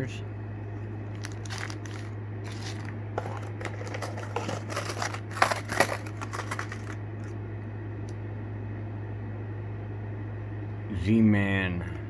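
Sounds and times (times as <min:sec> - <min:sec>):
steady low hum: 0:00.0 - 0:12.0
plastic packaging crinkling: 0:01.1 - 0:07.4.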